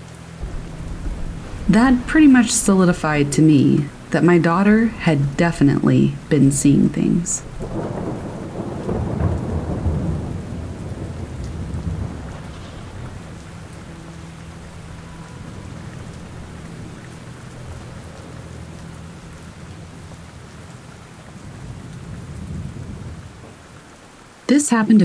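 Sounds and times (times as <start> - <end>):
thunder rumbling: 0.0 - 24.5
steady rainfall: 0.0 - 25.0.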